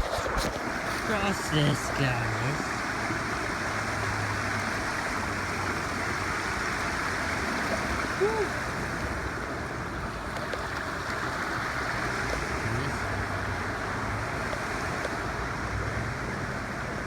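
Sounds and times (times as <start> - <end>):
river water flowing: 0.0 - 17.0.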